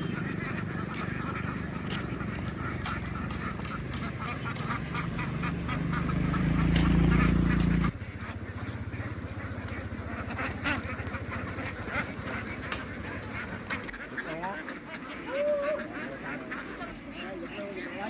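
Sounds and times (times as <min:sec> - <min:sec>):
low engine hum: 0:00.0 - 0:14.0
ducks quacking: 0:00.0 - 0:18.0.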